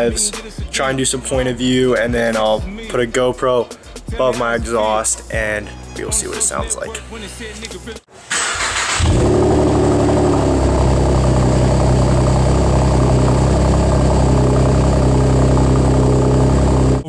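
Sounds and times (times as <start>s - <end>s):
car engine idling exhaust drone: 8.9s - 17.0s.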